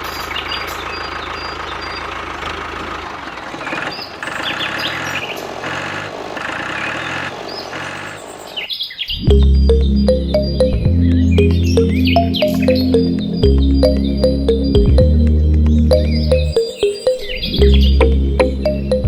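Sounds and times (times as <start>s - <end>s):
birds chirping: 8.6s - 19.0s.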